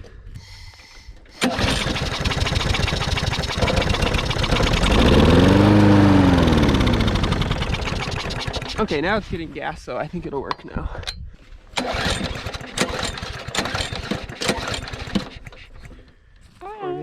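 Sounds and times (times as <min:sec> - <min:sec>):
lawn mower engine starting and running: 0:01.3 - 0:09.2, 0:11.8 - 0:16.2.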